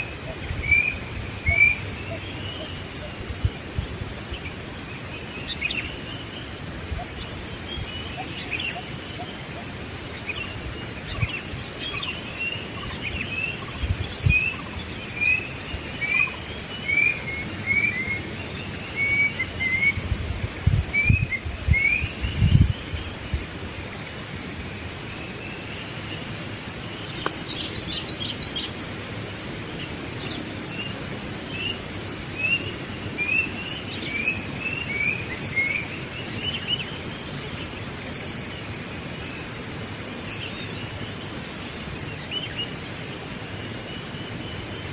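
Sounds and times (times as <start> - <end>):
wild birds calling: 0.0 - 24.1
high insect drone: 0.0 - 44.9.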